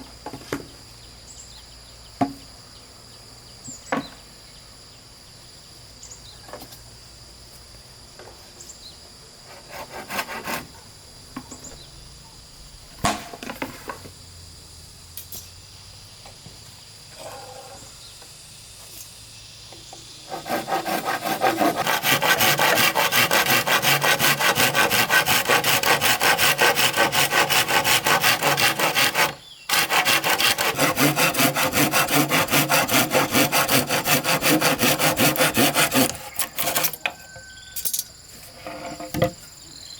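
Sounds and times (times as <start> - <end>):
saw cutting wood: 9.5 - 10.7, 20.2 - 37.1.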